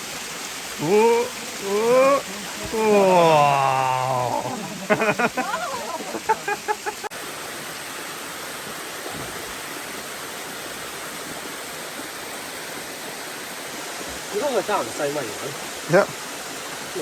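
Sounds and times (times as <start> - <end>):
waterfall rushing: 0.0 - 17.0
person exclaiming and laughing: 0.8 - 7.0.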